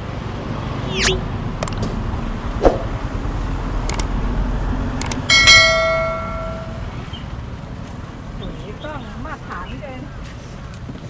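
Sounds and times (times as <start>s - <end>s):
sharp clicks: 1.6s - 1.9s, 3.9s - 4.1s, 5.0s - 5.3s
ringing metal strike: 5.3s - 7.0s.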